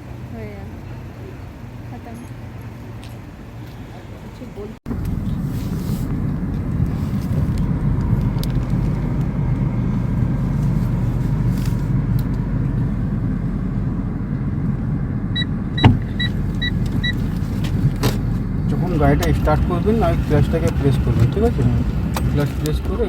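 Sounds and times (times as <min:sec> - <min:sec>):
car engine rumble: 0:00.0 - 0:23.0
sharp thump: 0:15.8 - 0:16.1.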